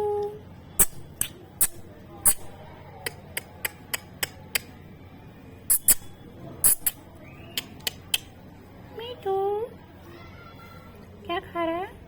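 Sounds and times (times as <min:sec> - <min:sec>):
parrot beak clicking: 0:00.8 - 0:04.7, 0:05.7 - 0:08.3.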